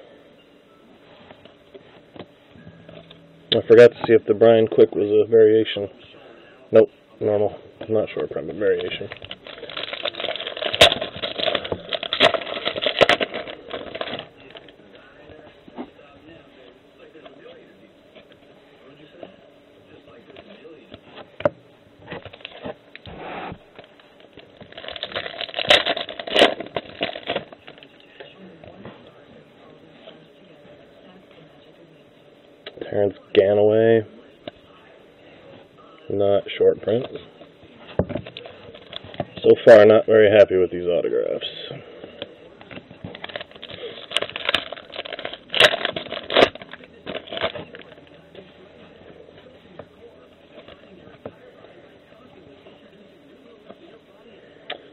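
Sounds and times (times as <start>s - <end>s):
trading cards rustling: 8.7s - 14.7s, 24.6s - 28.0s, 43.0s - 48.0s
wrapper crinkling: 8.7s - 14.7s, 24.6s - 28.0s, 43.1s - 48.1s.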